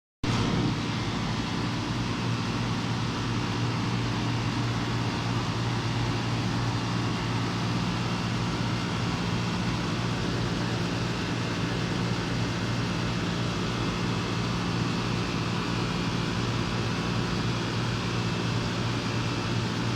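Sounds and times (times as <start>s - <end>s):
fan rushing: 0.2s - 14.5s
compressor hum: 0.2s - 19.9s.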